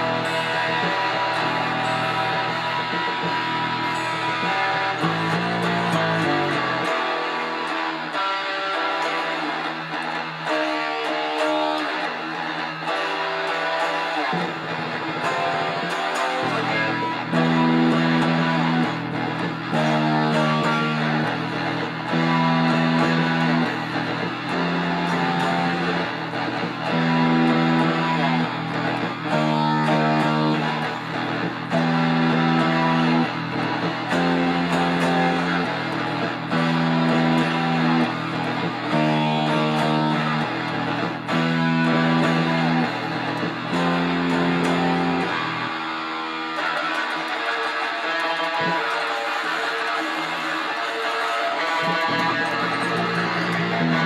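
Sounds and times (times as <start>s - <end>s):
electric guitar chords: 0.0s - 54.0s.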